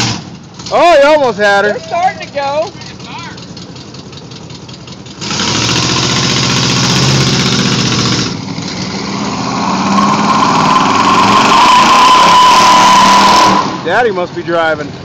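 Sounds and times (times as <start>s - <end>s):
high tyre squeal: 5.2s - 13.9s
car engine revving hard: 5.2s - 14.1s.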